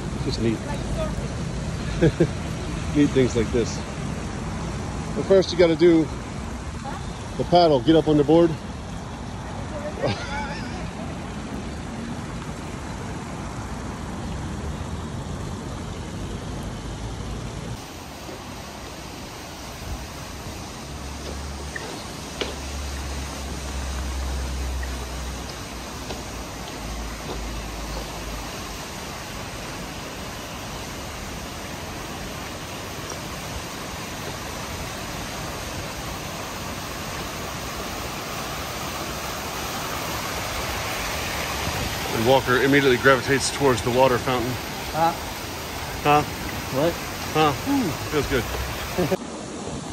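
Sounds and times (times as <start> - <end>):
fountain water splashing: 0.0 - 49.9.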